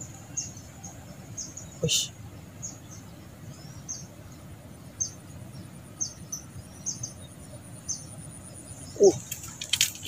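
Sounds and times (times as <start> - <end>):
small bird chirping: 0.0 - 10.0.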